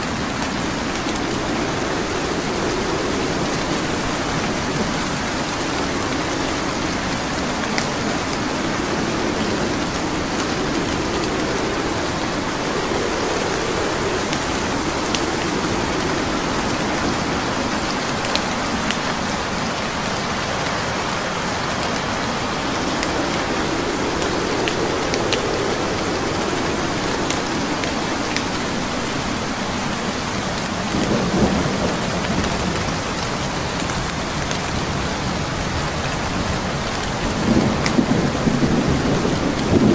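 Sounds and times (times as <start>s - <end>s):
slow low rumbles: 0.0s - 20.0s, 20.7s - 29.9s
steady rain: 0.0s - 39.9s
wood fire crackling and popping: 0.2s - 19.9s, 20.6s - 31.2s.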